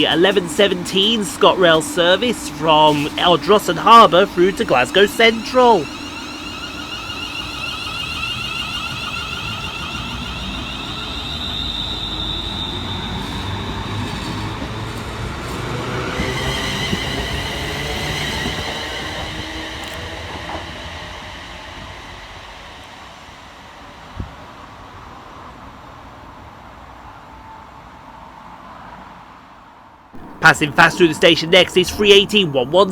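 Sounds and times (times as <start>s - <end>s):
train wheels rumbling: 0.0s - 23.8s
electric train traction whine: 0.0s - 26.7s, 30.2s - 32.9s.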